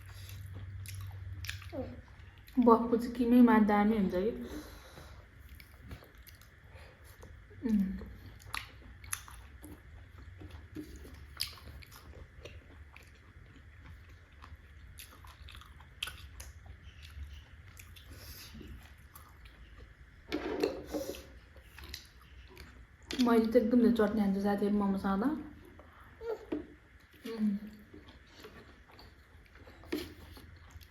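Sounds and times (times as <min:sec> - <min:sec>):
wet chewing mouth smacks: 0:10.7 - 0:14.0.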